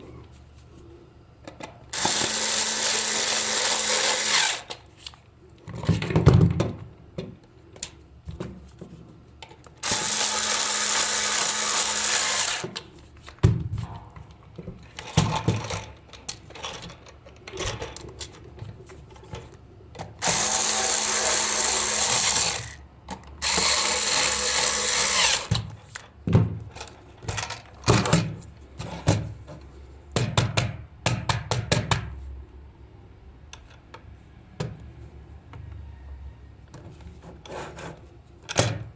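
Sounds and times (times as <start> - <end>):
small power tool running: 1.9 - 4.8, 9.8 - 12.8, 20.2 - 22.8, 23.4 - 25.6.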